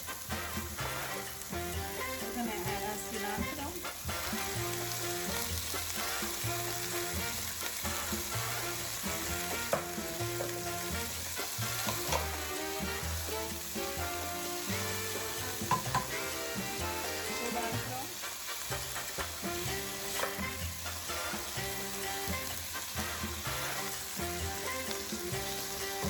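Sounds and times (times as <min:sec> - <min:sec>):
background music: 0:00.0 - 0:26.0
onions sizzling in oil: 0:00.0 - 0:26.0
utensil clicking against pan: 0:11.7 - 0:12.9, 0:18.2 - 0:20.6.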